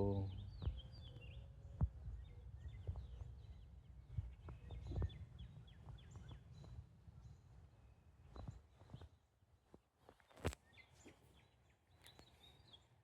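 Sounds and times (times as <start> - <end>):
birds chirping: 0.0 - 7.4
wind rumble on microphone: 0.0 - 9.2.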